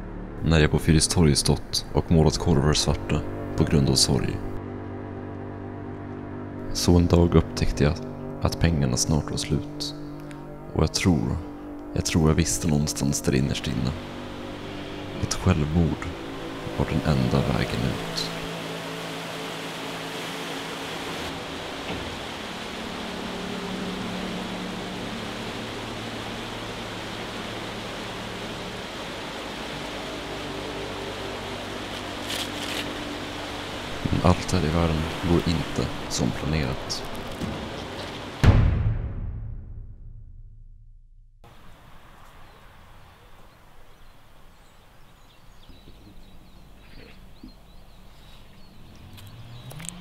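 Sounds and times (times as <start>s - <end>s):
low hum rising in pitch: 2.9s - 6.8s, 13.7s - 34.4s
faint bird chirps: 41.6s - 49.9s.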